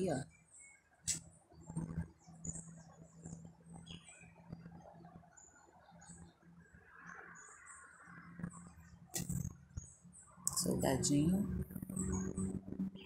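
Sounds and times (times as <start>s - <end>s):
birds chirping: 0.0s - 13.0s
low steady hum: 8.4s - 13.0s.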